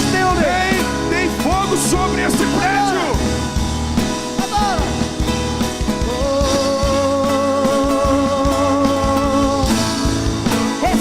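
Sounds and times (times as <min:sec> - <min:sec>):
church worship music: 0:00.0 - 0:11.0
drums: 0:00.0 - 0:11.0.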